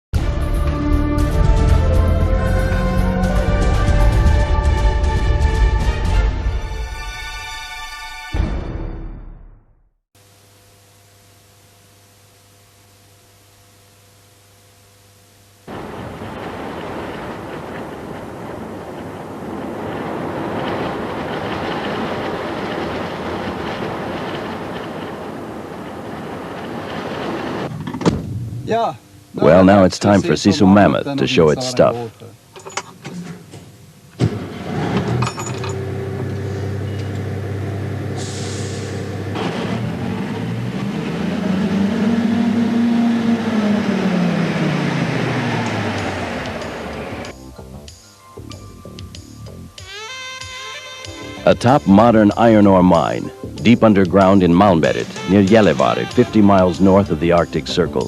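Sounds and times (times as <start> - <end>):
heavy vehicle rumbling and rattling: 15.7 - 27.9, 34.2 - 47.3
truck engine under load: 15.7 - 28.0, 34.2 - 47.3.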